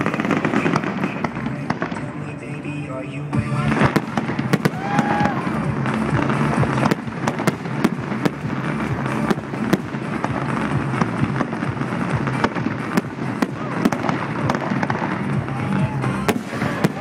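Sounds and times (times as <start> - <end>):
fireworks bangs: 0.0 - 17.0
fireworks crackle: 0.0 - 17.0.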